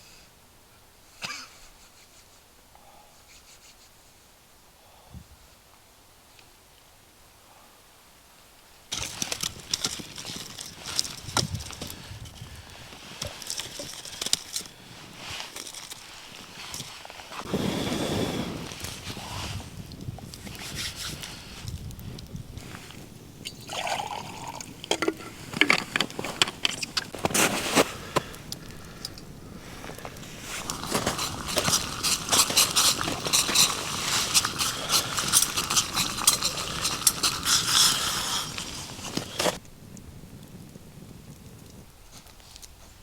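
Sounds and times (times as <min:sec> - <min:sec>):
liquid pouring into container: 0:23.5 - 0:25.4.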